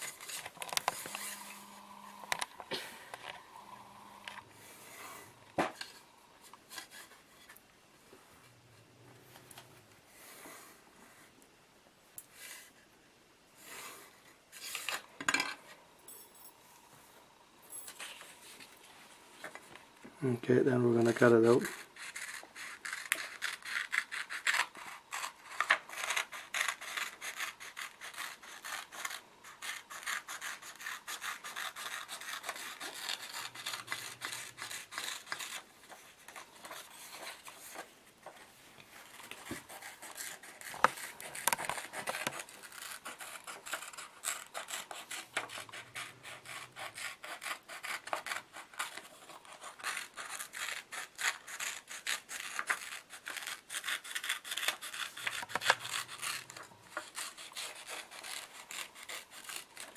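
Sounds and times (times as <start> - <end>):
scissors snipping paper: 21.0 - 37.9, 39.1 - 59.9.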